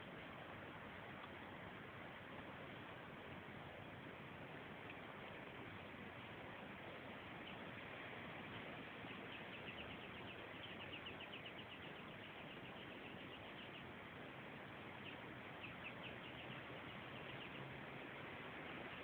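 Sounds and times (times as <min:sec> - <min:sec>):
faint outdoor hiss: 0:00.0 - 0:19.0
small bird chirping: 0:07.2 - 0:19.0.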